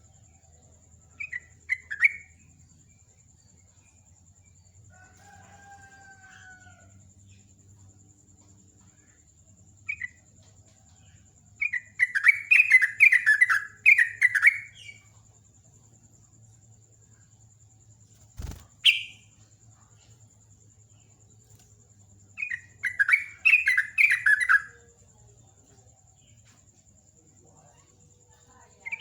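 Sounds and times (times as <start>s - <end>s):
bulbul singing: 11.0s - 15.1s, 18.4s - 19.5s, 22.2s - 26.4s
faint drawn-out bird call: 18.4s - 19.5s.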